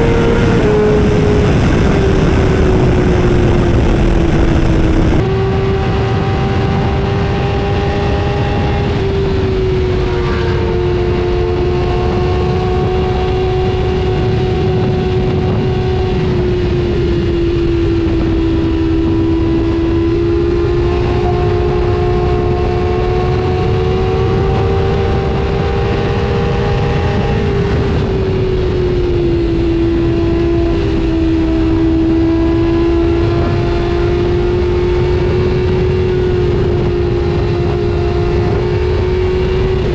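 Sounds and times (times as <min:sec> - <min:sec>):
rushing noise: 0:00.0 - 0:05.2
motor running at high speed: 0:00.0 - 0:05.3.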